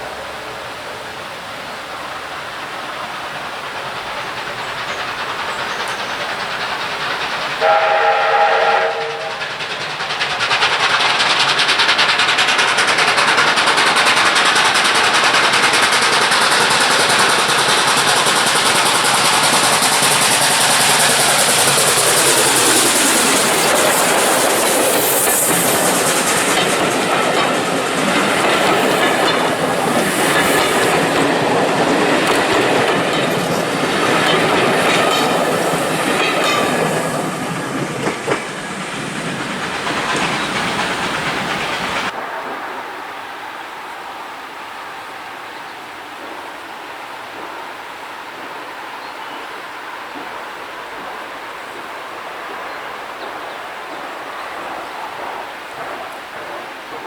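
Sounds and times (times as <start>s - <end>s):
steam train passing: 0.0s - 57.0s
steam locomotive whistle: 7.6s - 9.7s.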